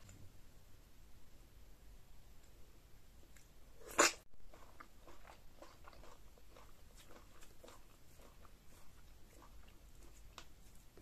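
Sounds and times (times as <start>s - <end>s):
close chewing: 3.9s - 11.0s.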